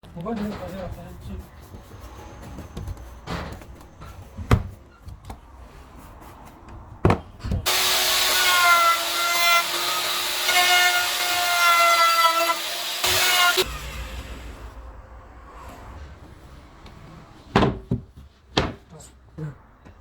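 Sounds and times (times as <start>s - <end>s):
wood knocking: 7.0s - 7.7s
power tool cutting wood: 7.7s - 14.8s.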